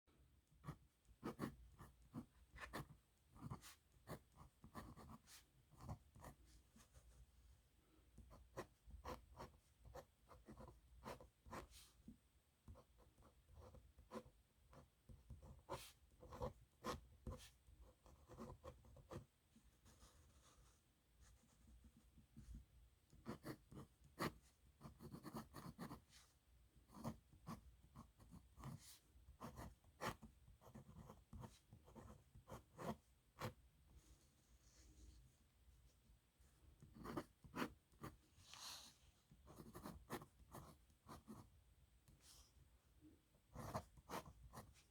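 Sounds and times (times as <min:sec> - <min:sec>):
nib pen scratching on paper: 0:00.6 - 0:06.9, 0:23.2 - 0:26.2, 0:26.9 - 0:33.6, 0:36.8 - 0:38.7, 0:39.4 - 0:41.5, 0:43.6 - 0:44.9.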